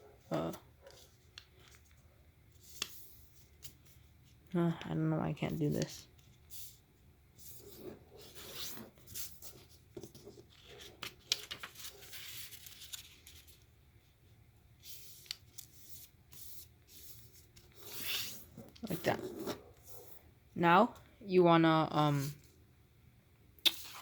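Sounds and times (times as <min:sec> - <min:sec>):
paper being folded and creased: 0:00.3 - 0:04.4, 0:07.4 - 0:13.8, 0:14.8 - 0:20.0, 0:23.7 - 0:24.0.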